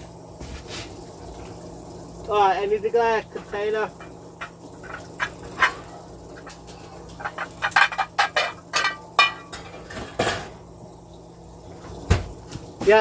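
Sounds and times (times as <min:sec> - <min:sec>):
glass dishes clinking: 0:04.0 - 0:10.6.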